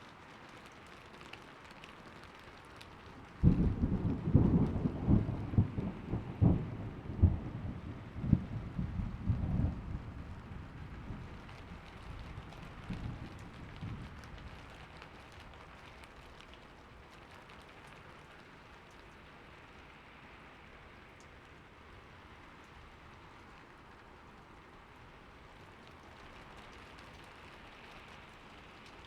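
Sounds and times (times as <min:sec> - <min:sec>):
steady rain falling: 0:00.0 - 0:29.0
thunder rumbling: 0:03.4 - 0:14.3.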